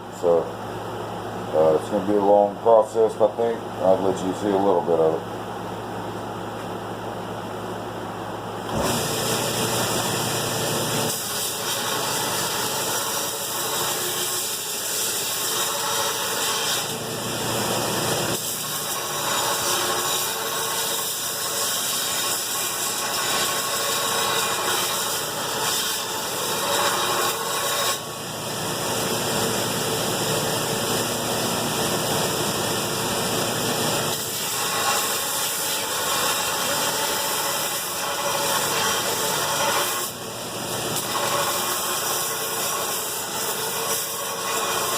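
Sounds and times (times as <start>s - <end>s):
grinder on steel blade: 8.8s - 28.2s, 33.9s - 44.9s.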